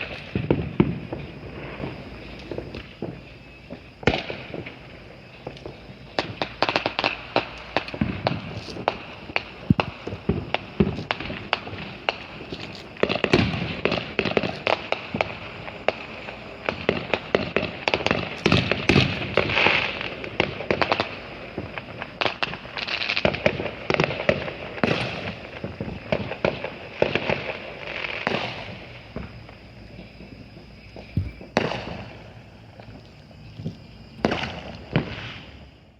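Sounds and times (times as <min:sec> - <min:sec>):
firecrackers popping and banging: 0:05.4 - 0:26.7.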